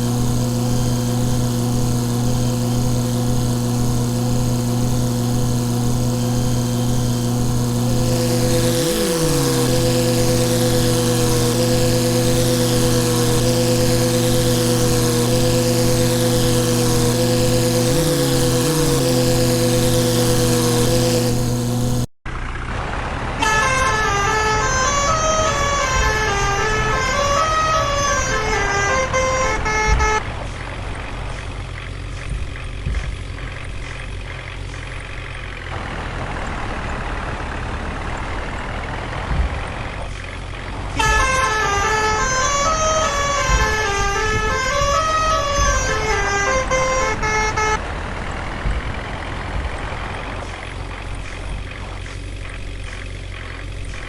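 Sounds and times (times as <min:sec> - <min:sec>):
musical horn tune: 0:00.0 - 0:22.1, 0:23.4 - 0:30.4, 0:40.9 - 0:48.0
tractor engine running: 0:00.0 - 0:54.0.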